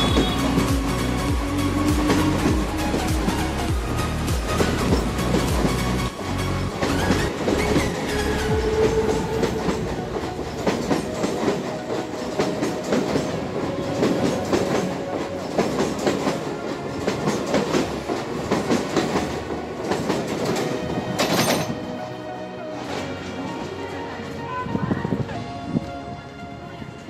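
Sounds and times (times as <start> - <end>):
train wheels clattering over rail joints: 4.3 - 21.9.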